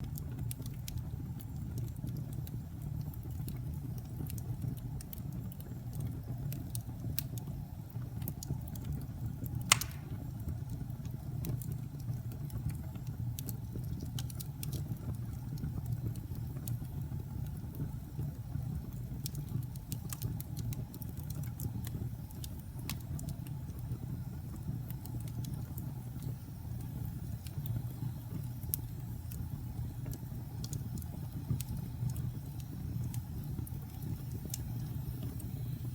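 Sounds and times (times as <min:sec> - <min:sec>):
wood fire crackling: 0:00.0 - 0:35.9
loud pop from fire: 0:09.6 - 0:10.4.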